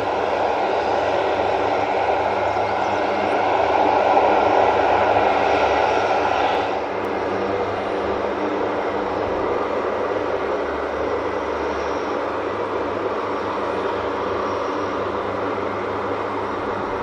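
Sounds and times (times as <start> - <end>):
aircraft engines droning: 0.0 - 17.0.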